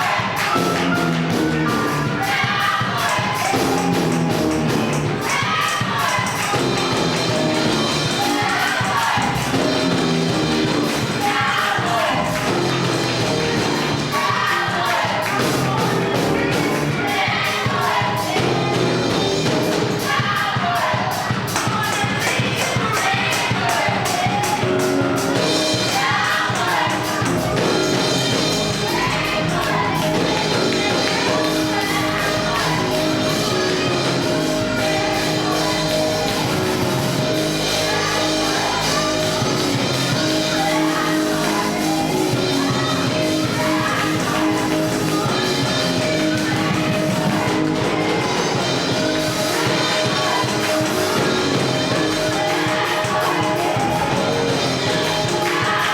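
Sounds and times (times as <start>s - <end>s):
band with steady drum beat: 0.0s - 55.9s
voices singing gospel: 0.0s - 55.9s.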